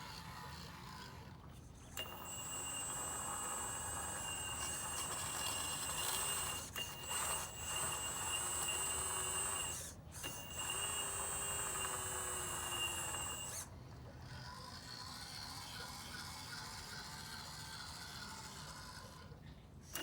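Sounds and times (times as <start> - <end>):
hydraulic pump whining: 0.0 - 13.7.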